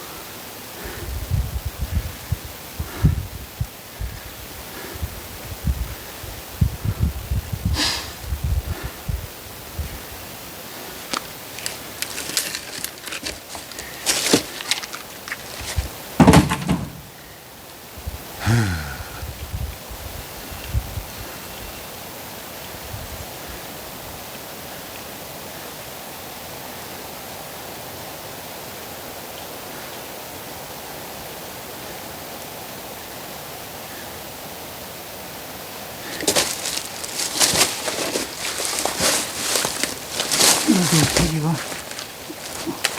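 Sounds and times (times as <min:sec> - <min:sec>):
steady hiss: 0:00.0 - 0:42.9
firewood knocking and clicking: 0:11.0 - 0:17.1
heavy wooden thud: 0:15.7 - 0:17.2.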